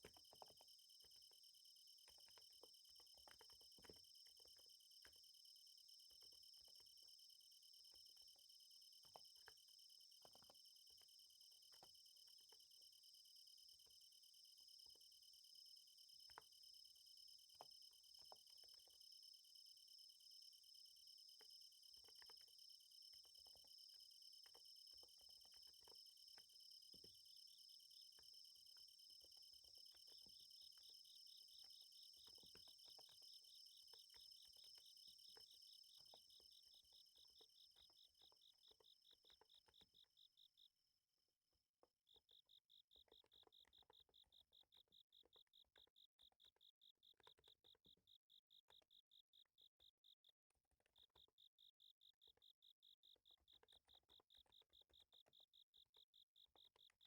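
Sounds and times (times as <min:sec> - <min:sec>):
insects chirping: 0:00.0 - 0:40.7.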